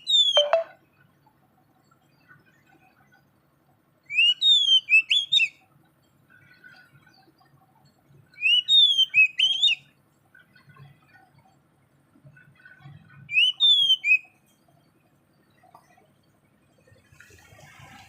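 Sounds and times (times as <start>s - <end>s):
songbird whistling: 0.0s - 0.7s, 4.1s - 5.6s, 8.4s - 9.9s, 13.3s - 14.3s.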